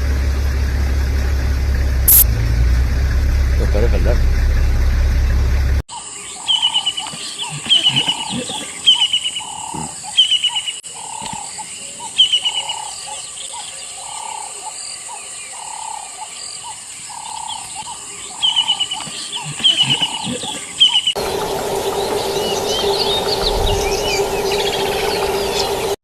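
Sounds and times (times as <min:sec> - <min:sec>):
high-pitched hum: 0:00.0 - 0:05.8, 0:21.2 - 0:26.0
high animal calls: 0:16.6 - 0:26.0.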